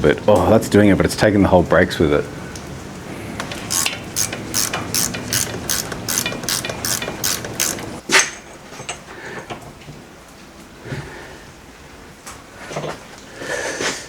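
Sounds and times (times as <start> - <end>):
ratchet clicking: 3.4 - 8.0.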